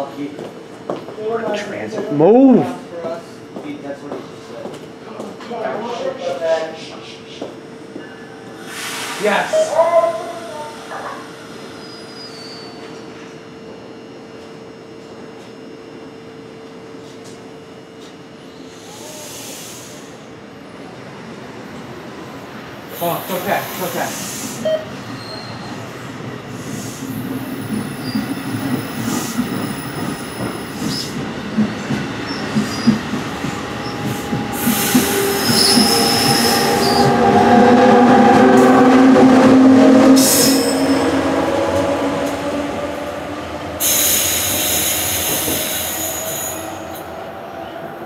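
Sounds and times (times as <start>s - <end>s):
burst of hiss: 8.6s - 9.4s, 43.8s - 46.6s
train wheels clicking over joints: 26.6s - 37.5s
squealing whine of running gear: 34.6s - 38.8s, 40.2s - 41.1s.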